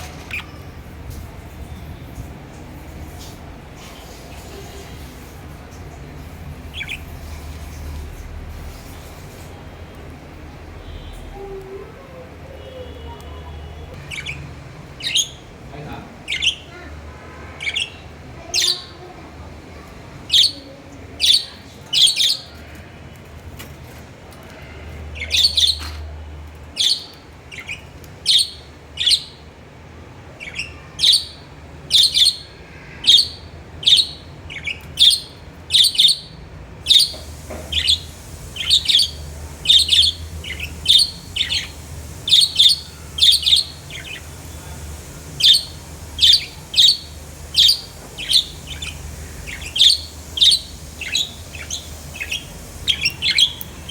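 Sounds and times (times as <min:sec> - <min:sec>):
budgerigars chirping: 0:06.7 - 0:07.4, 0:14.0 - 0:14.4, 0:33.1 - 0:53.9.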